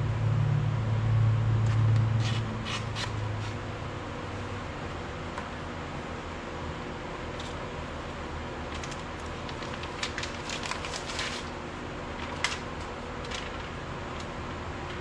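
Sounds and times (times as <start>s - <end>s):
steady low hum: 0.0s - 15.0s
crackles and sharp clicks: 12.2s - 15.0s.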